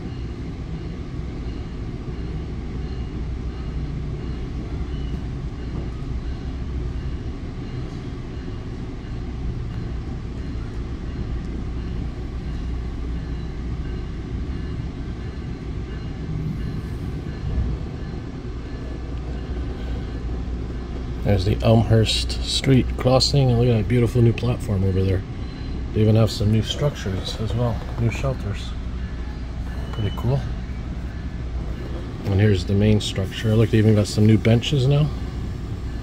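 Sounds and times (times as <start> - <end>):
train coach rumbling on rails: 0.0 - 36.0
train bump: 3.6 - 22.2, 26.0 - 36.0.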